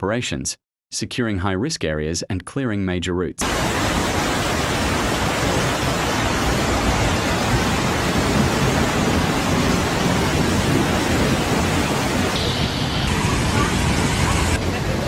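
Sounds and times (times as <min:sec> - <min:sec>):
water rushing: 0:03.4 - 0:15.0.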